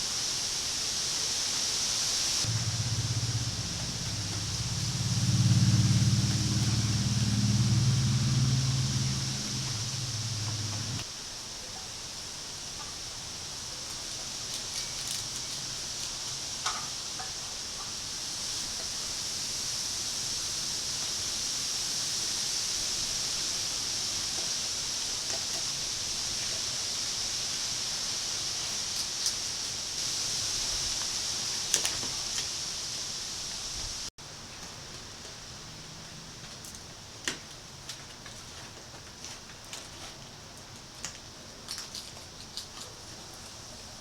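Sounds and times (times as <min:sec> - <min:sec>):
high-pitched hiss: 0:00.0 - 0:34.1.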